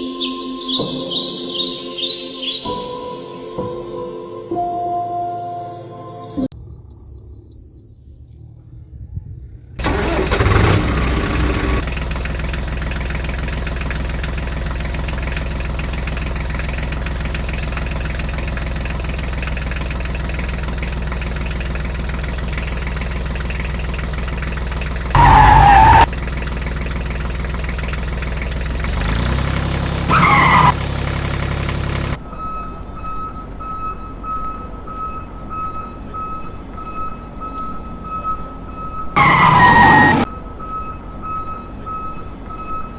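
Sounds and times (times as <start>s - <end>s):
loud engine bursts: 9.8s - 23.8s, 25.0s - 42.9s
tractor engine running: 9.8s - 42.9s
pulsing high tone: 32.1s - 42.9s.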